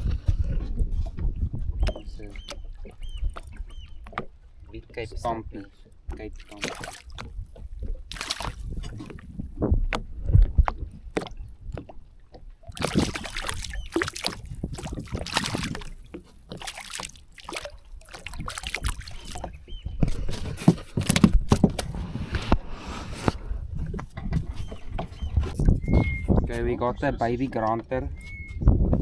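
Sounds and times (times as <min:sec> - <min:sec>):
handling knocks and rustles: 0:05.7 - 0:22.6.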